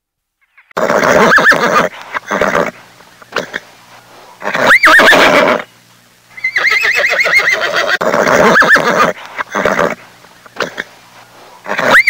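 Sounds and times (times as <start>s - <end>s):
horse whinnying: 0.8s - 2.7s, 4.5s - 5.7s, 6.4s - 10.0s, 11.7s - 12.0s.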